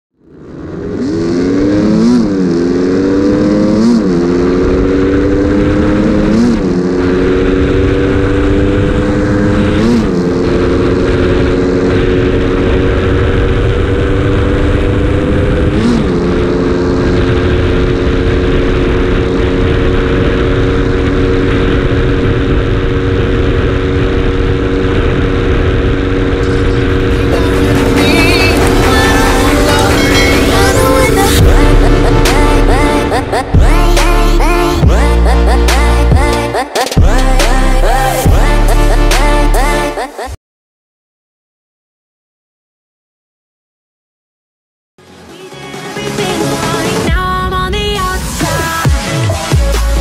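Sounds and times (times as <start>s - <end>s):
motorcycle engine accelerating: 0.1s - 40.1s
wind rushing over microphone: 0.6s - 35.1s.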